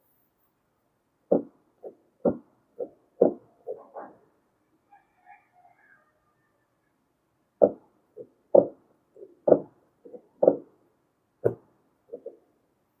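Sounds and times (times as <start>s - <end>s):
knocks: 1.3s - 4.2s, 7.6s - 10.7s, 11.4s - 12.4s.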